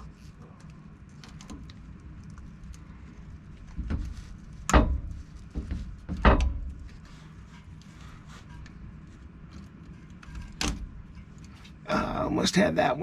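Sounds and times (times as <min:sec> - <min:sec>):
sharp metal knocks: 0:04.7 - 0:06.8.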